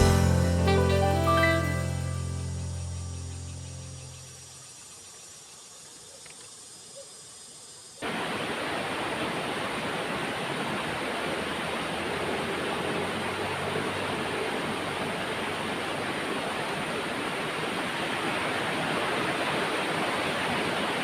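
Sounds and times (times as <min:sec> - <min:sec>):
waterfall roaring: 0:08.0 - 0:21.0.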